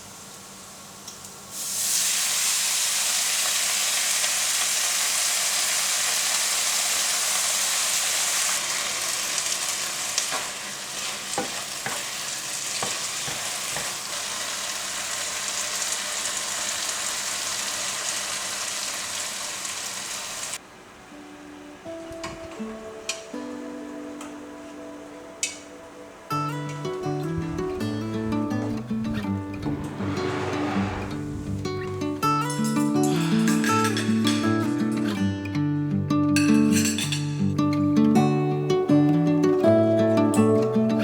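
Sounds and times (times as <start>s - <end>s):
food sizzling in hot oil: 0.0s - 20.6s.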